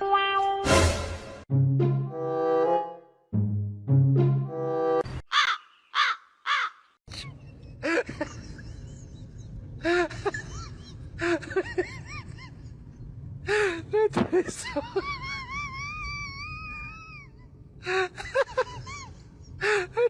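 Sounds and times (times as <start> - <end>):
music: 0.0 - 5.0
loud bird calls: 5.3 - 7.0.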